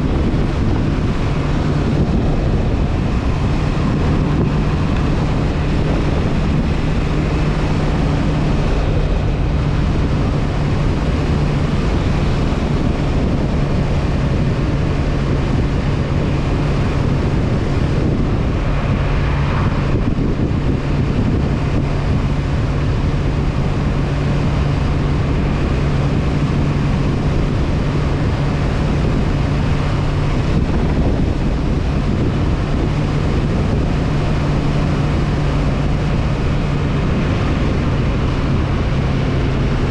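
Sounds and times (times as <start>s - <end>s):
motorcycle engine droning: 0.0s - 39.9s
wind noise on microphone: 0.0s - 39.9s.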